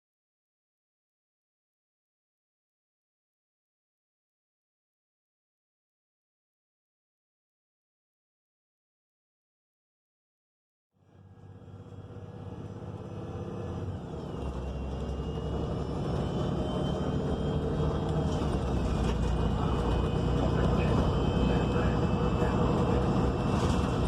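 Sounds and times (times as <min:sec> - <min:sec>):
bus engine rumble: 0:11.0 - 0:24.0
high whine: 0:11.0 - 0:24.0.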